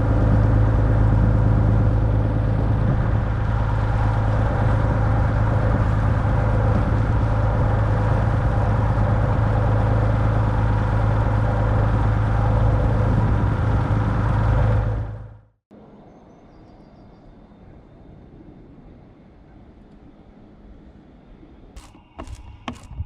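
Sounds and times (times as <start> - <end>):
boat engine humming: 0.0 - 15.5.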